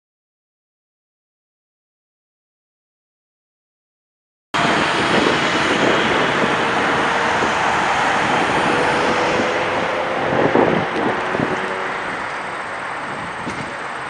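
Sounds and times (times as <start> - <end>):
jet engines rushing: 4.6 - 14.0.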